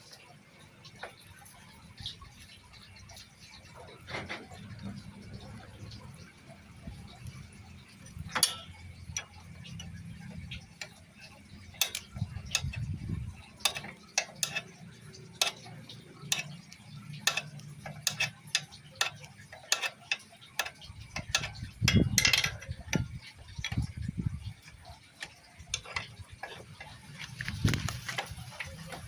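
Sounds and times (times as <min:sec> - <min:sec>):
metal clatter: 0:06.9 - 0:29.0
metallic clicks and taps: 0:07.8 - 0:24.0, 0:24.6 - 0:29.0.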